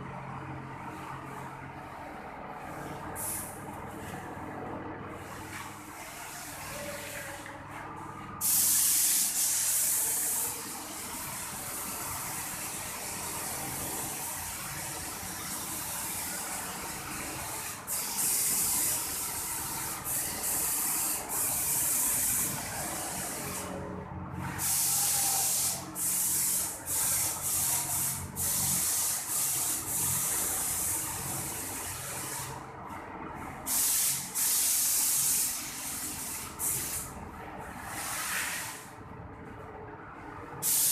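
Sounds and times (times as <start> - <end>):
spray machine running: 0.9 - 4.4, 5.1 - 32.7, 33.4 - 37.2, 40.6 - 40.9
paint sprayer hissing: 2.7 - 4.0, 8.4 - 23.8, 24.4 - 32.6, 33.7 - 37.2, 37.8 - 38.9, 40.6 - 40.9.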